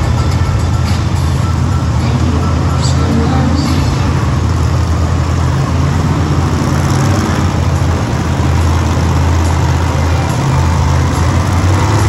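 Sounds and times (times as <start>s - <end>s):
truck engines idling: 0.0s - 12.0s.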